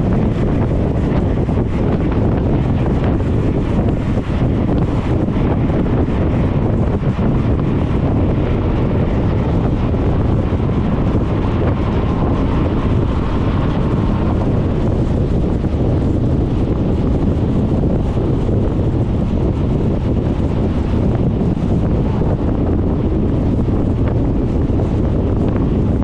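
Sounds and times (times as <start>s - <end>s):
scooter vehicle noise: 0.0s - 26.0s
wind rushing on microphone: 0.0s - 26.0s.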